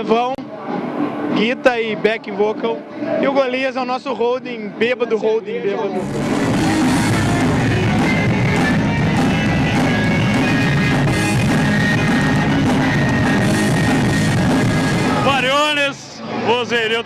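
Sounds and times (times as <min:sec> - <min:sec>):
drum kit with cymbals: 0:06.0 - 0:15.6
bass guitar: 0:06.0 - 0:16.5
distorted electric guitars: 0:06.0 - 0:17.0.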